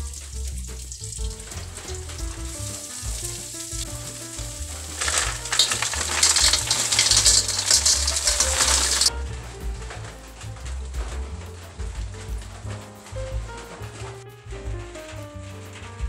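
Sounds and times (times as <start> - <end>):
food sizzling in hot oil: 0.0 - 9.1
quiet background music: 0.0 - 16.0.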